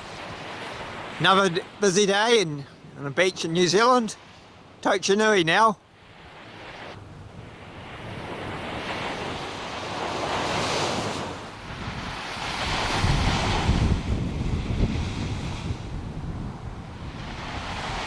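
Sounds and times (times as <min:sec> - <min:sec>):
waves breaking on beach: 0:00.0 - 0:18.0
wind buffeting microphone: 0:07.0 - 0:18.0.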